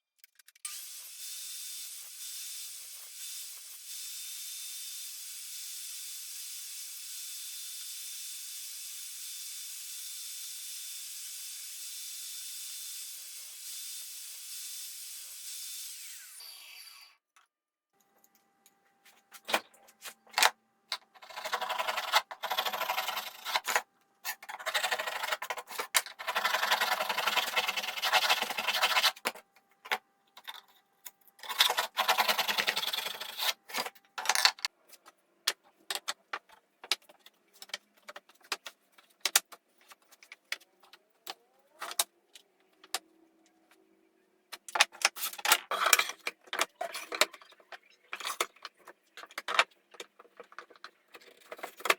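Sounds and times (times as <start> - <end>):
scratchy rasping on wood: 26.2 - 29.2
clicks and knocks of wood and tools: 33.7 - 43.8, 44.5 - 51.9.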